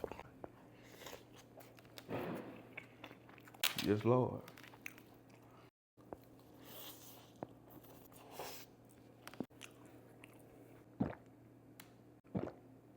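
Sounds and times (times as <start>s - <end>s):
person chewing wetly: 6.2s - 11.3s, 12.4s - 12.6s.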